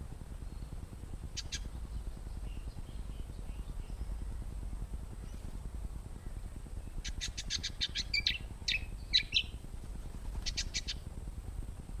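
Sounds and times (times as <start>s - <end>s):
steady low rumble: 0.0s - 12.0s
bird chirping: 1.4s - 4.3s, 6.2s - 9.6s, 10.4s - 11.0s.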